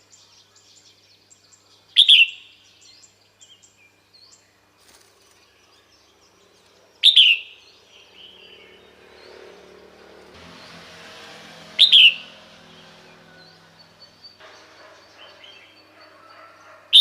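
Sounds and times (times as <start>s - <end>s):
bird calling with downward sweeps: 7.0s - 9.5s, 10.5s - 17.0s.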